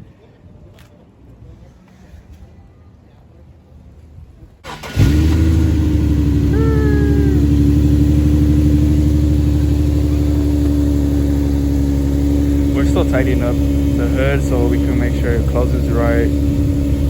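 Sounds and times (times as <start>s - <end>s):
car engine idling: 4.6s - 17.0s
short falling tone: 5.6s - 9.7s.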